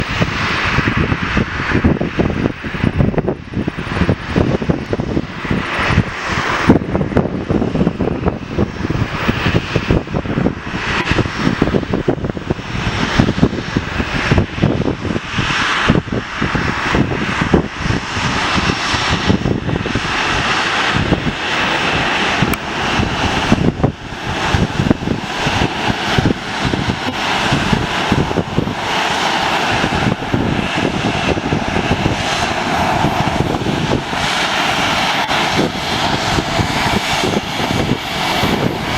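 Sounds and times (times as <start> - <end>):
jet engines running: 0.0 - 38.9
wind buffeting microphone: 0.0 - 38.9.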